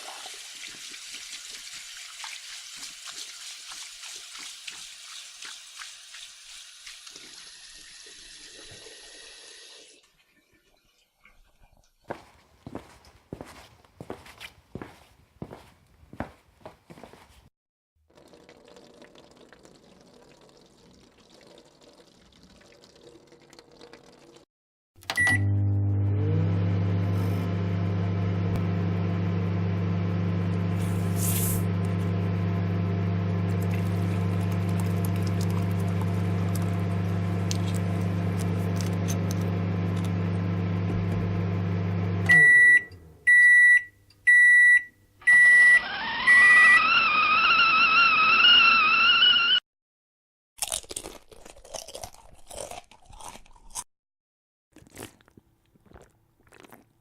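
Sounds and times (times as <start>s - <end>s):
microwave button beep: 25.0s - 25.9s, 42.2s - 46.8s
microwave finish beeps: 25.0s - 33.6s, 39.6s - 49.6s
microwave humming: 25.0s - 49.6s.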